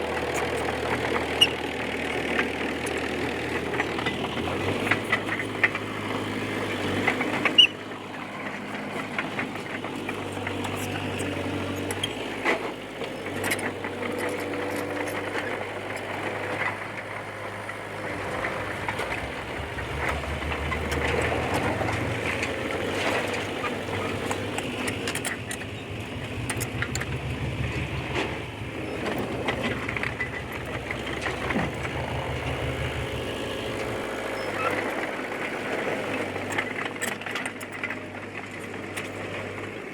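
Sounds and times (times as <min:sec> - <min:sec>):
bulldozer diesel engine running: 0:00.0 - 0:39.9
metallic clicks and clanks: 0:18.8 - 0:32.1.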